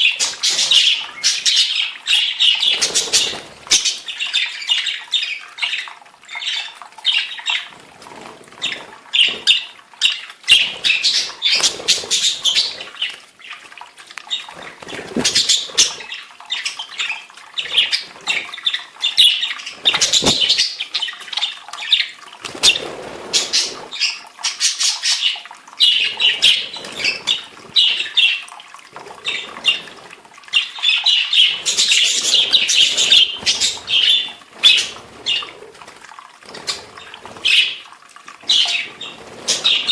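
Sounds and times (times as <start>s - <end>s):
budgerigars chattering and chirping: 0.0s - 7.7s, 8.6s - 13.1s, 14.3s - 22.0s, 30.5s - 35.5s, 38.5s - 39.9s.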